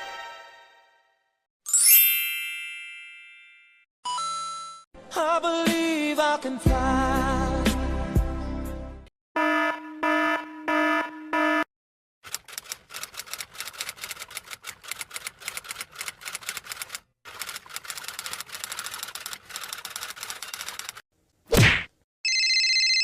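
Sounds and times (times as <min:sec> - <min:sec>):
electronic alarm beeping: 0:09.4 - 0:11.7
typewriter keys clacking: 0:12.2 - 0:21.0.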